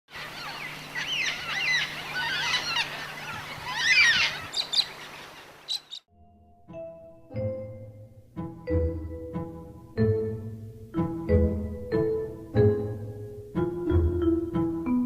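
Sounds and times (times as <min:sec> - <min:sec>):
birds chirping: 0:00.1 - 0:06.1
outdoor background hiss: 0:00.1 - 0:15.0
soft sustained music notes: 0:06.1 - 0:15.0.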